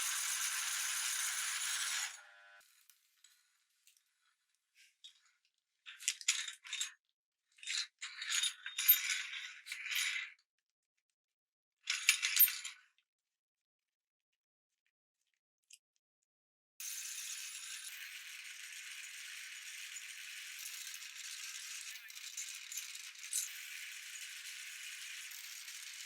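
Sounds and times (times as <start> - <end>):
pop-it toy crushed in meat grinder: 0.0 - 2.3.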